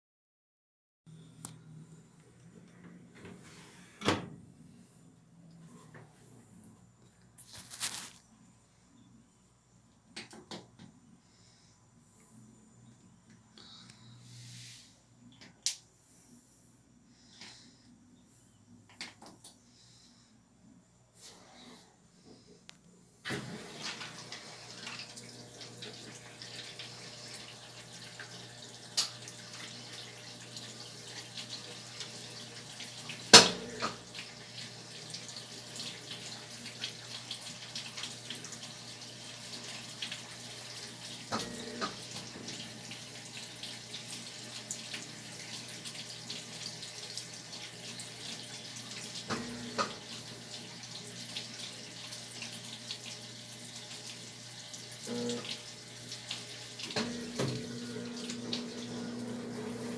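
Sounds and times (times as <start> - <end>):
water running into washing machine: 23.3 - 59.9.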